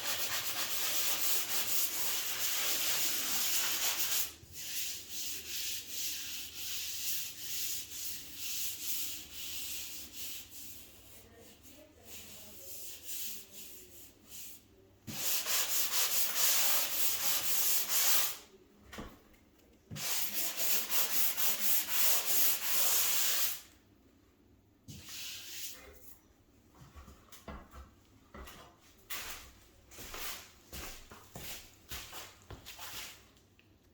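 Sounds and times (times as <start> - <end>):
sanding sponge scratching plaster: 0.0 - 14.5, 15.1 - 18.4, 20.0 - 23.6.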